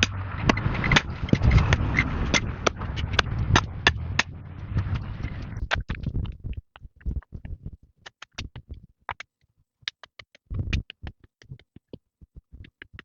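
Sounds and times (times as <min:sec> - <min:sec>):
heavy thuds: 0:00.0 - 0:06.0.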